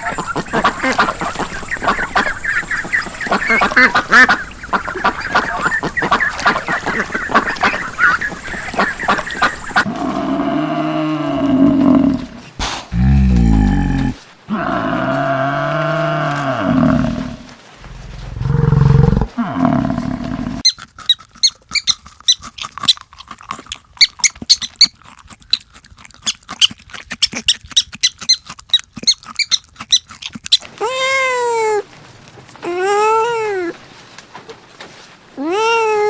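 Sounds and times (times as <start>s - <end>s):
low roar-like animal call: 9.8s - 20.6s
rising and falling animal call: 9.8s - 20.6s
high-pitched animal squeaks: 20.6s - 23.0s, 24.0s - 25.0s, 26.3s - 31.8s.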